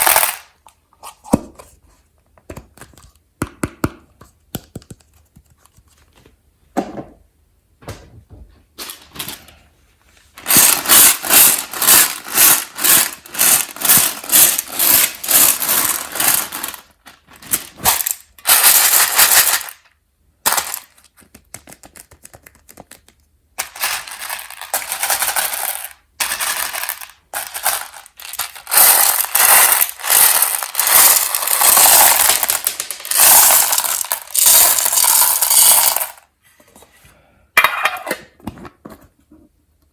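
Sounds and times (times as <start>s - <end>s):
candies clattering on hard surface: 0.0s - 0.6s, 10.4s - 36.3s.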